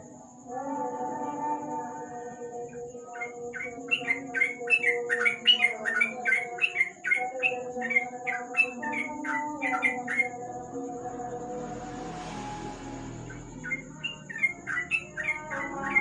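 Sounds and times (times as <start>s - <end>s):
steady background tones: 9.8s - 16.0s
bird chirping rapidly: 12.6s - 16.0s.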